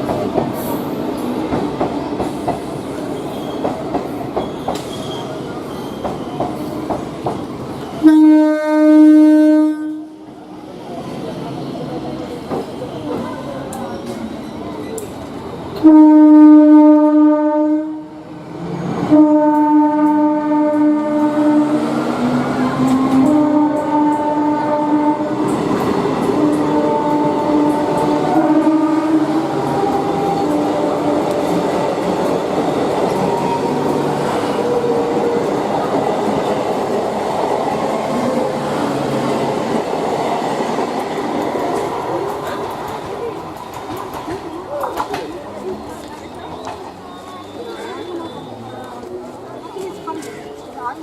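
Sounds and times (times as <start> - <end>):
clickety-clack over rail joints: 0.0 - 7.9, 12.3 - 15.9, 19.4 - 24.4, 25.3 - 28.7, 39.1 - 48.2
train wheels rumbling: 0.0 - 8.1, 9.8 - 51.0
train horn blasts: 8.0 - 10.2, 15.8 - 18.1, 19.1 - 21.8, 22.9 - 25.4, 26.4 - 29.3.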